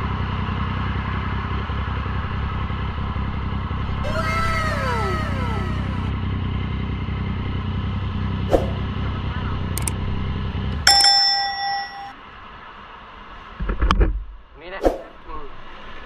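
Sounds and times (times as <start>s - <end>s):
short ringing tone: 10.9s - 12.2s.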